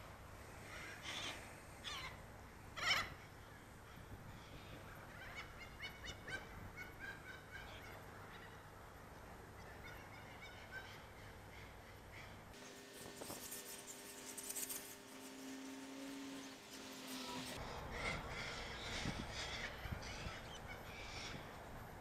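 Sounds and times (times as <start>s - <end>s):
faint bird calls: 0.6s - 8.8s.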